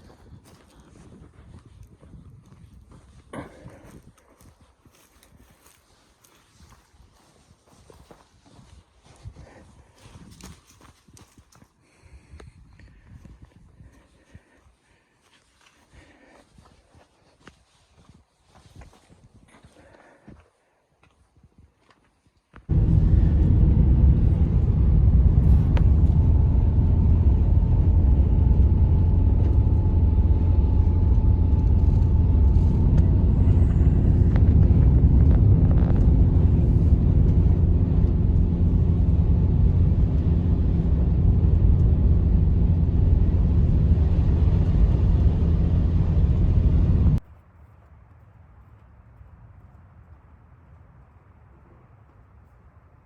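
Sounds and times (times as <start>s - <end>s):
wind buffeting microphone: 22.7s - 47.2s.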